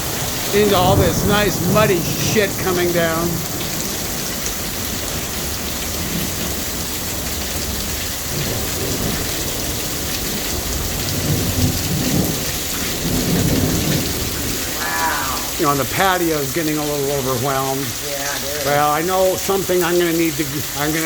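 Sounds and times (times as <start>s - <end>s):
low rumble of thunder: 0.0s - 14.8s
heavy rain pouring: 0.0s - 21.0s.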